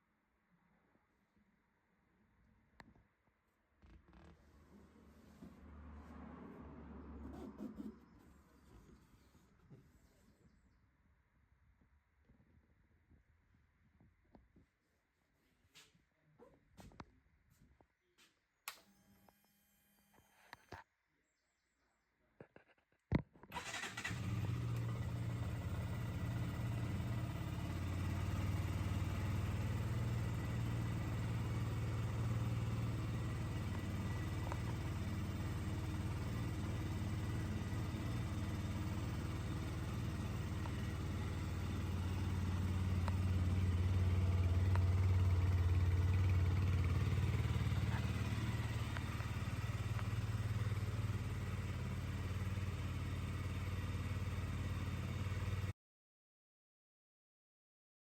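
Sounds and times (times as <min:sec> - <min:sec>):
motorcycle engine idling: 0:23.6 - 0:55.7.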